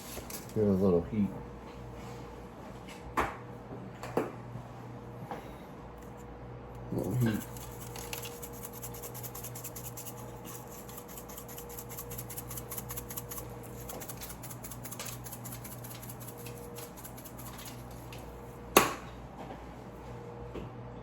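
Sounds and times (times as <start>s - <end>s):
spice shaker rattling: 7.0s - 17.8s.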